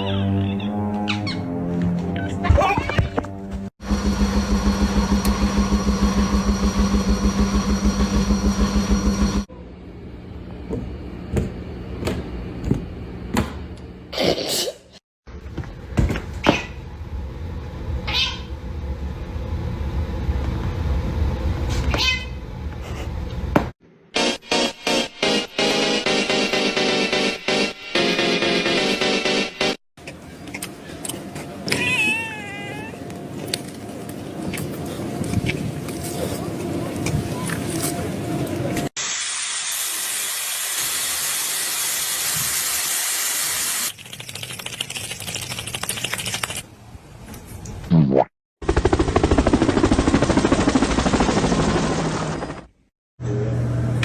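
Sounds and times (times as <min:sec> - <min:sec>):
steady low rumble: 0:16.8 - 0:21.8
cat meowing: 0:18.1 - 0:18.5, 0:31.7 - 0:33.0
rapid crackling clicks: 0:43.9 - 0:46.6.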